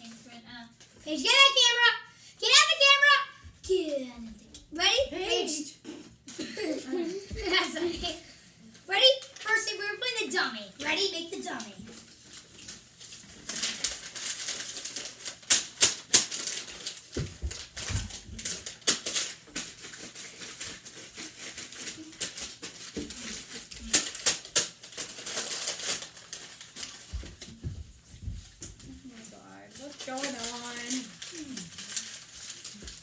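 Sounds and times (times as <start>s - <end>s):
paper rustling and crackling: 10.8s - 33.0s.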